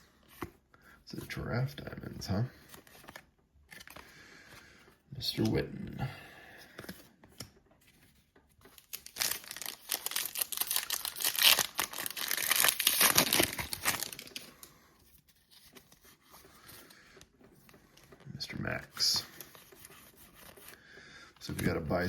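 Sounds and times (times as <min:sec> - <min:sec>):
foil wrapper crinkling and tearing: 0:08.8 - 0:14.6.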